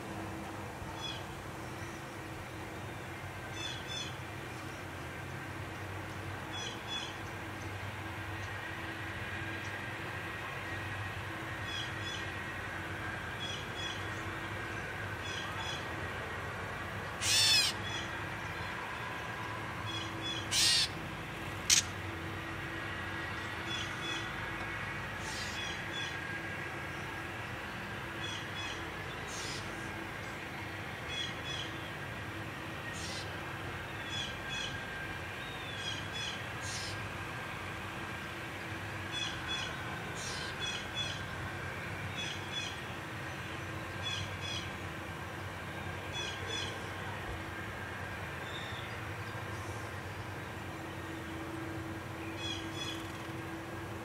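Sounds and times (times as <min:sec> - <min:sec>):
bird calling: 0:17.2 - 0:18.2, 0:19.9 - 0:21.0, 0:21.7 - 0:22.0, 0:25.2 - 0:26.2, 0:28.2 - 0:29.8, 0:32.9 - 0:33.4, 0:35.6 - 0:37.0, 0:39.1 - 0:41.3, 0:52.2 - 0:53.2.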